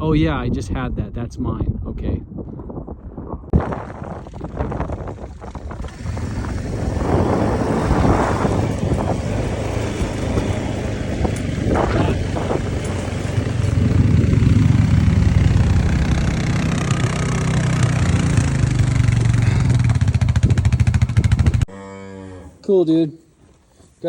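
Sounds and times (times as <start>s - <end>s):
small vehicle engine running: 3.6s - 21.7s.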